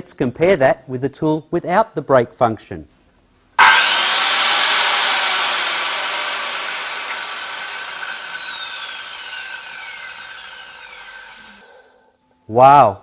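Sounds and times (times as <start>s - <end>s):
circular saw winding down: 3.6s - 11.9s.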